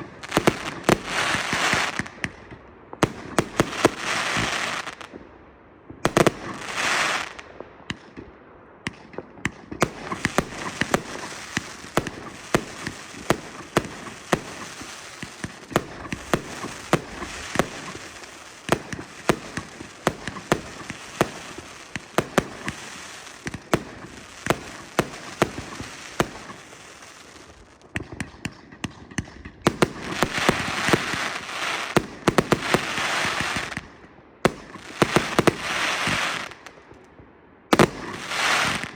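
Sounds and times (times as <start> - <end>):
steady crackle: 9.8 - 33.9.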